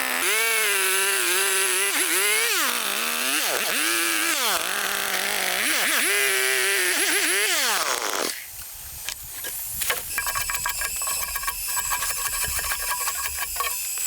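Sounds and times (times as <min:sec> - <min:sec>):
chainsaw engine revving: 0:00.0 - 0:08.4.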